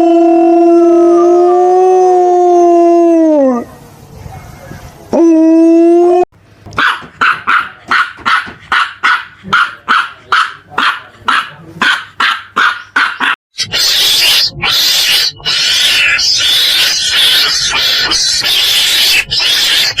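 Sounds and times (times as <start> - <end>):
animal held call: 12.6 - 20.0.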